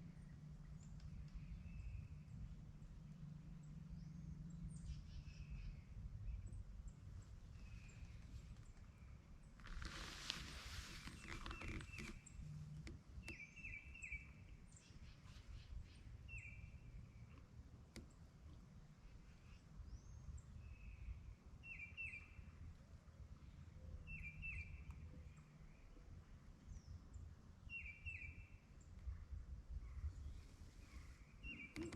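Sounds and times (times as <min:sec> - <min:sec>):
small birds chirping: 0:00.0 - 0:22.7, 0:23.4 - 0:31.9
faint clicks: 0:00.8 - 0:01.5, 0:09.5 - 0:13.7, 0:17.3 - 0:18.6, 0:30.7 - 0:31.9.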